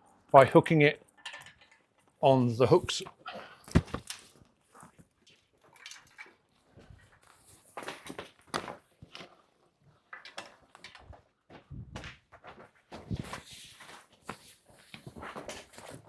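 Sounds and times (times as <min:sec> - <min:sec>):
netting and fabric rustling: 0:01.4 - 0:16.0.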